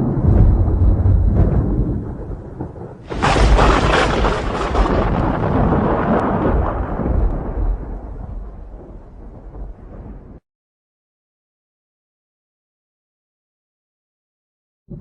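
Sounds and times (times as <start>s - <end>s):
thunder crack and rumble: 0.0s - 10.4s.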